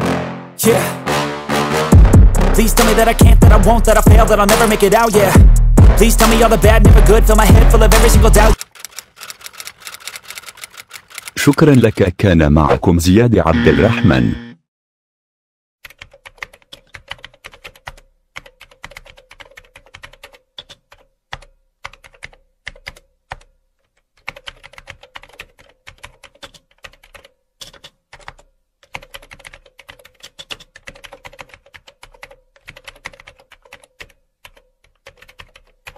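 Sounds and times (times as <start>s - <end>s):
typing on computer keyboard: 8.5s - 12.1s, 15.8s - 35.9s.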